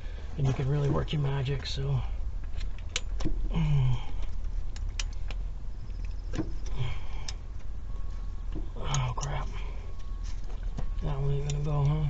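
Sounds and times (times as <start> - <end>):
steady low rumble: 0.0 - 12.0
person grunting: 3.5 - 4.2.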